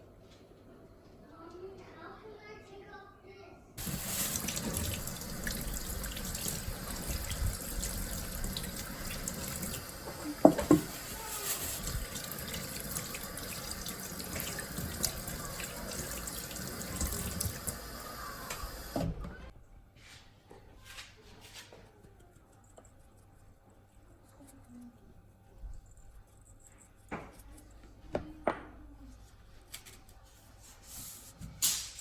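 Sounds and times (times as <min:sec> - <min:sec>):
water running into sink: 0:03.8 - 0:19.5.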